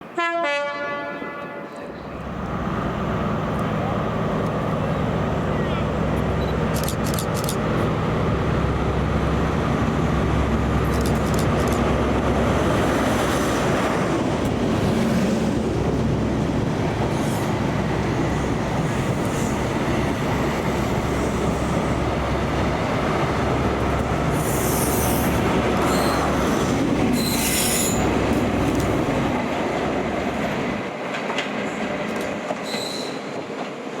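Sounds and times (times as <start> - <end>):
wheel-on-rail noise: 2.2 - 34.0
high-pitched wheel squeals: 25.8 - 26.3, 27.2 - 28.1.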